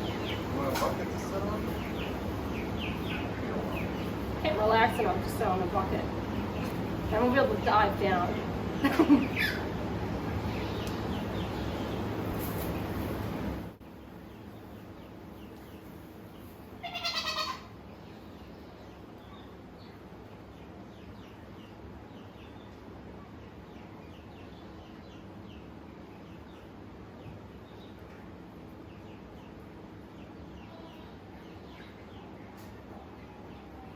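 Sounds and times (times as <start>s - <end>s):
steady hiss-like noise: 0.0s - 33.9s
goat bleating: 16.8s - 17.7s.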